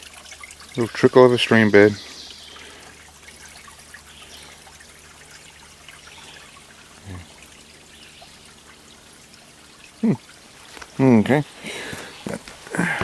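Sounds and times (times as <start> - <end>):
stream trickling faintly: 0.0 - 13.0.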